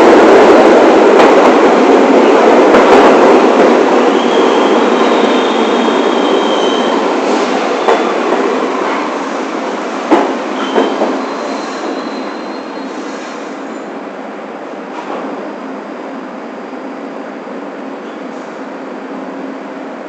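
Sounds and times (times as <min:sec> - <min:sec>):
subway train rumbling on rails: 0:00.0 - 0:20.0
train wheels squealing: 0:04.0 - 0:08.1, 0:10.5 - 0:13.8.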